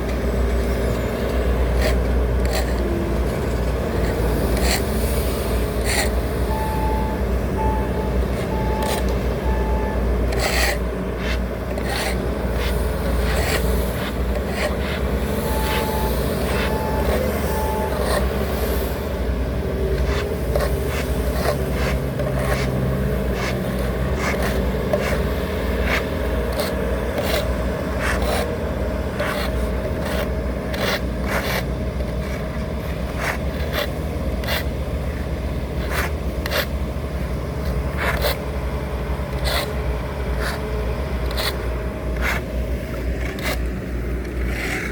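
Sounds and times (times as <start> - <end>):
diesel machinery running: 0.0 - 44.9
reversing alarm beeping: 6.4 - 10.1, 15.2 - 18.4.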